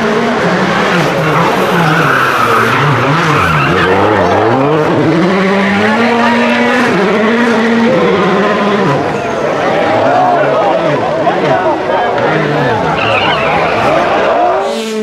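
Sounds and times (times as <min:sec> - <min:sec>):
rally car engine revving: 0:00.0 - 0:09.3, 0:10.8 - 0:15.0
tyre and road noise: 0:11.4 - 0:15.0.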